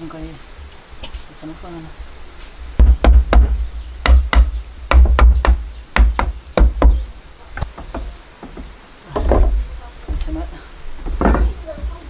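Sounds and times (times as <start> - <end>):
light knocks: 2.4 - 12.0
heavy blows striking wood: 2.6 - 12.0.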